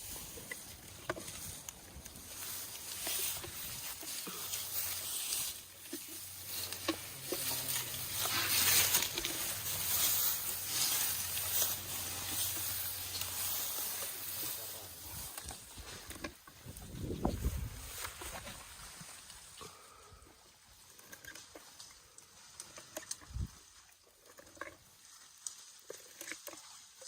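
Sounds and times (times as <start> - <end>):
elephants chewing branches: 0.0 - 20.0
leafy branches rustling: 0.0 - 20.0
branches snapping: 5.8 - 14.2.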